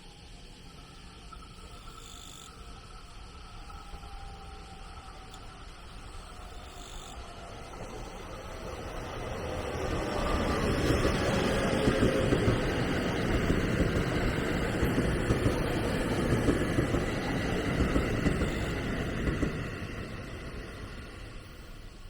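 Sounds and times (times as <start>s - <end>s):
train wheels rumbling on rails: 2.8s - 22.0s
train wheels clacking: 10.2s - 20.8s.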